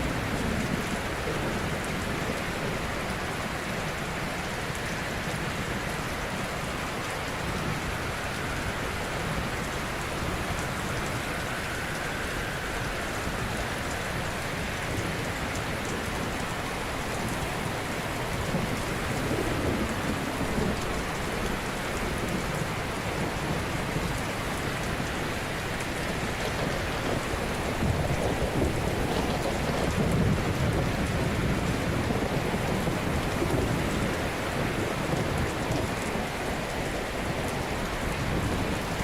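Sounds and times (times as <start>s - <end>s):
ocean waves washing onto shore: 0.0s - 39.0s.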